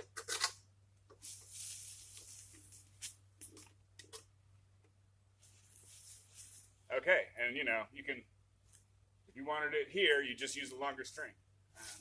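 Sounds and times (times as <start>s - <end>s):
rustling of branches: 1.2s - 3.2s, 5.4s - 6.9s.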